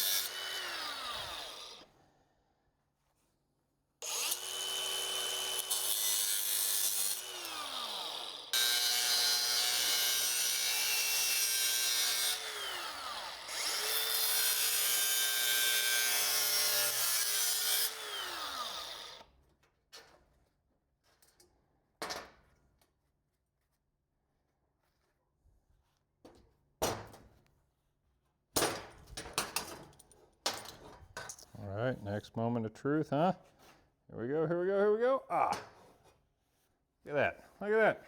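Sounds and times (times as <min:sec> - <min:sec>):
power tool cutting metal: 0:00.0 - 0:01.8, 0:04.0 - 0:19.2.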